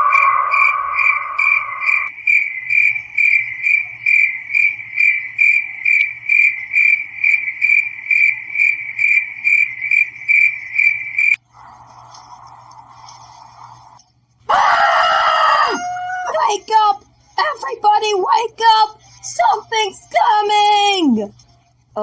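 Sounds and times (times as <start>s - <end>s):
steady lower tone: 0.0s - 2.1s
cricket chirping: 0.0s - 14.1s.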